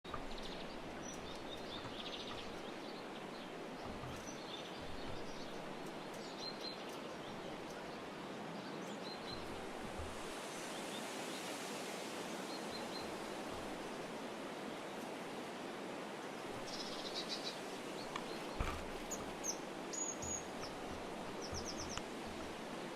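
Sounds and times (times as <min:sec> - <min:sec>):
soft low bumps: 0:00.0 - 0:06.2, 0:09.3 - 0:10.4, 0:13.1 - 0:14.1, 0:18.0 - 0:22.9
outdoor background hiss: 0:00.0 - 0:22.9.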